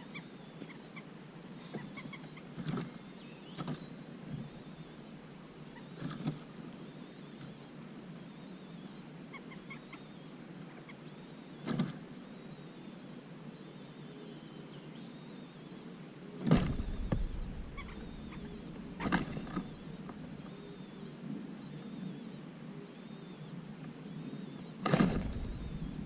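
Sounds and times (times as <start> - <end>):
small birds chirping: 0.0 - 26.0
knocks or rustles: 16.4 - 20.2, 24.8 - 26.0
low rumble: 16.6 - 20.4, 25.0 - 26.0.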